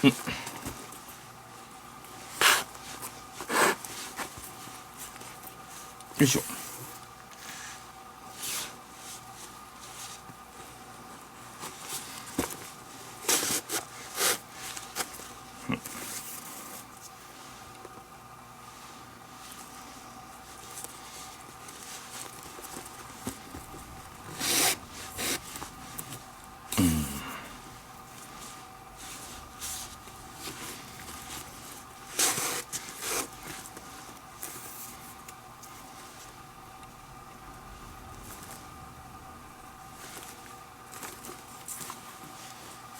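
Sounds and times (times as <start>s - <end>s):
faint steady hum: 0.0s - 42.9s.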